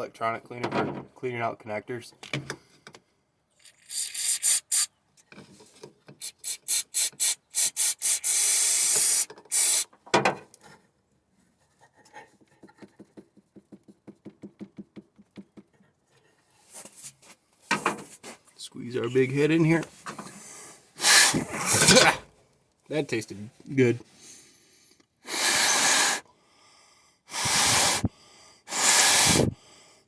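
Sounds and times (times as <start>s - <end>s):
aerosol can spraying: 3.8s - 4.9s, 6.2s - 9.9s, 21.0s - 21.9s, 25.3s - 26.2s, 27.3s - 28.1s, 28.7s - 29.5s.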